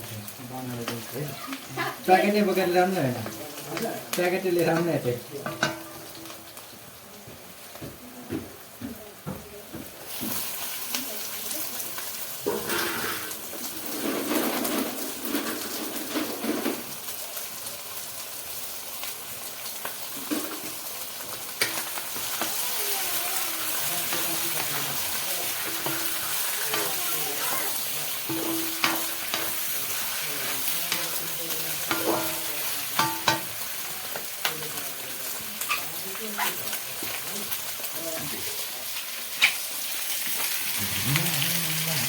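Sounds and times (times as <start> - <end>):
food sizzling in a pan: 0.0 - 42.0
utensil stirring and scraping: 23.6 - 33.4.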